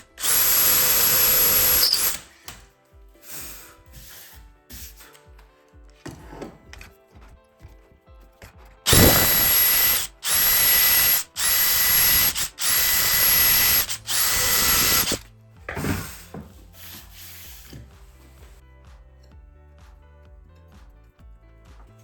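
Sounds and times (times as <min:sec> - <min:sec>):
power tool motor whine: 0:00.0 - 0:02.2, 0:08.9 - 0:15.2.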